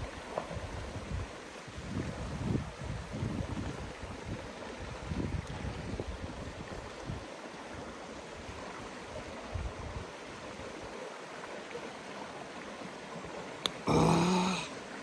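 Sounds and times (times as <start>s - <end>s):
wind buffeting microphone: 0.0s - 7.3s
river water rushing: 6.3s - 15.0s.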